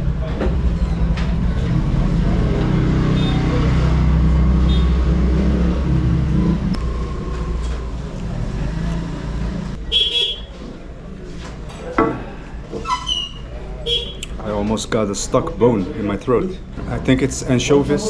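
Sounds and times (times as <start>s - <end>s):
vehicle engine passing: 1.0s - 9.9s.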